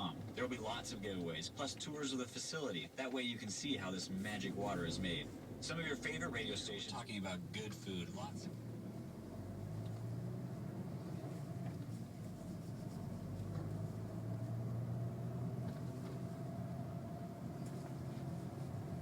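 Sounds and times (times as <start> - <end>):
car engine and exhaust drone: 0.0 - 2.1, 3.5 - 19.0
road noise: 0.0 - 19.0.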